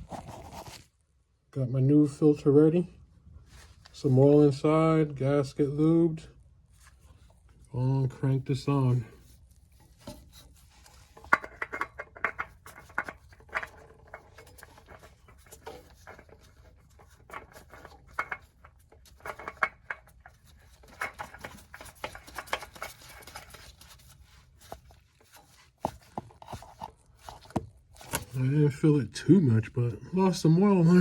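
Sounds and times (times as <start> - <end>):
oil filter scraping and clicking: 6.8 - 28.5.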